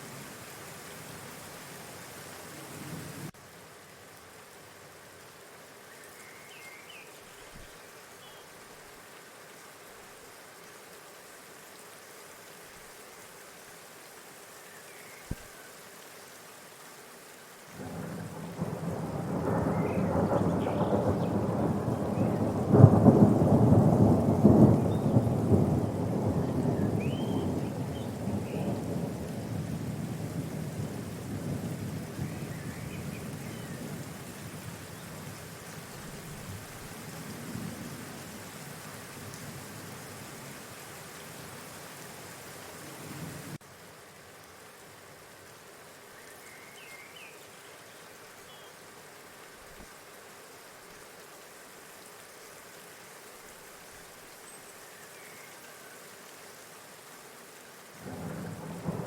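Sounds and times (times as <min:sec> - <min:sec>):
rolling thunder: 0:17.8 - 0:32.5.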